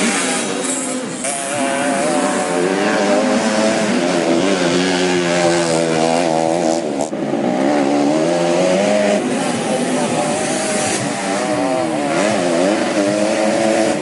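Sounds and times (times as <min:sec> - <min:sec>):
dirt bike engines racing: 0:00.0 - 0:14.0.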